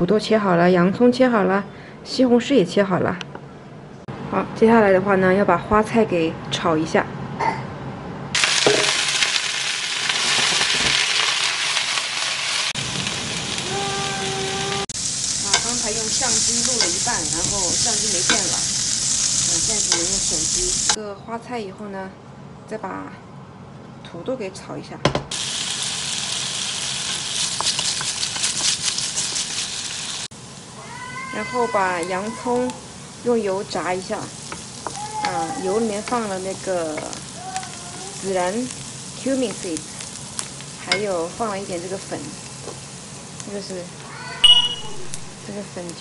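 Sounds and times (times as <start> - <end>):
vegetables sizzling in hot oil: 8.4 - 21.0, 25.3 - 46.0.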